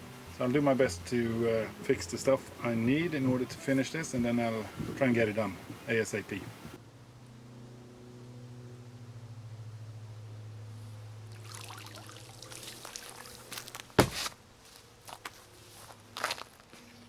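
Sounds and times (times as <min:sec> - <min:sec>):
low steady hum: 0:00.0 - 0:17.0
water pouring and splashing: 0:11.3 - 0:13.8.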